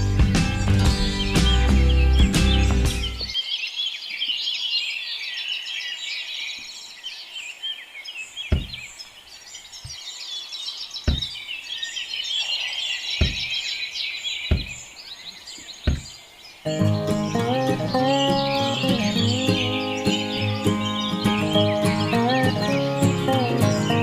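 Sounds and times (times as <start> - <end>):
flock of small birds chirping: 0.0 - 24.0
short dull knocks: 8.5 - 8.9, 11.0 - 11.4, 13.2 - 13.6, 14.5 - 14.9, 15.6 - 16.2.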